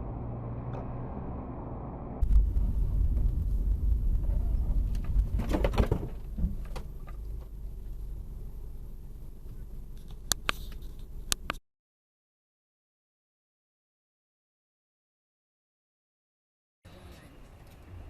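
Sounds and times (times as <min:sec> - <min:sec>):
noisy rush: 0:00.0 - 0:08.9
vehicle rumble: 0:00.0 - 0:11.6, 0:16.9 - 0:18.0.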